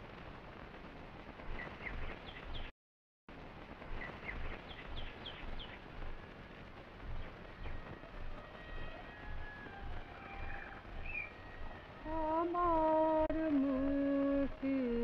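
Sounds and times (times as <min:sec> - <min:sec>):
film soundtrack hiss and rumble: 0:00.0 - 0:02.7, 0:03.3 - 0:15.0.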